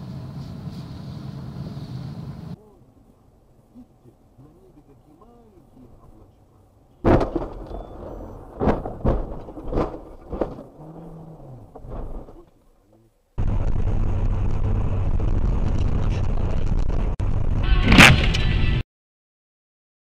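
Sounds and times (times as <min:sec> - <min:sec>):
car engine driving: 0:00.0 - 0:17.2
road noise: 0:00.0 - 0:18.8
crash impacts and thuds: 0:07.0 - 0:12.6, 0:13.4 - 0:18.8.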